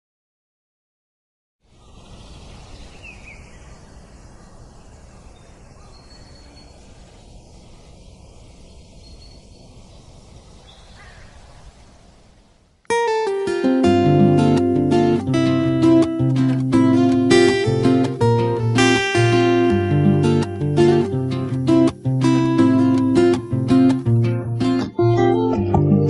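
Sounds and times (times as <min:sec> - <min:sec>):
faint bird calls: 0:01.7 - 0:12.5
rushing outdoor ambience: 0:01.7 - 0:24.8.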